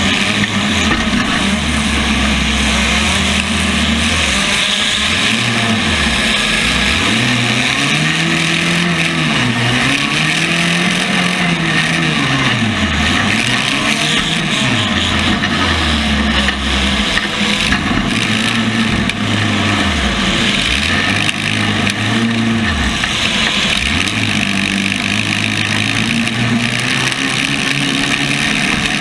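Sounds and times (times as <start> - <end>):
car engine revving: 0.0 - 29.0
din of car engines: 0.0 - 29.0.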